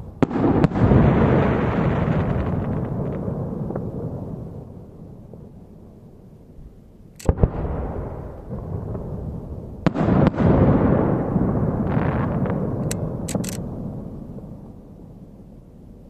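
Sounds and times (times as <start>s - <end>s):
firework bangs with echo: 0.0s - 5.5s, 7.3s - 14.6s
firework crackle: 0.0s - 5.5s.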